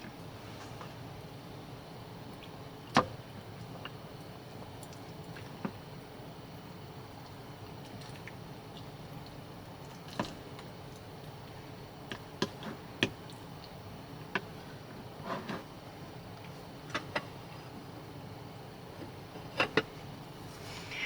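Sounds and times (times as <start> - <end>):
steady background hiss: 11.3 - 21.0.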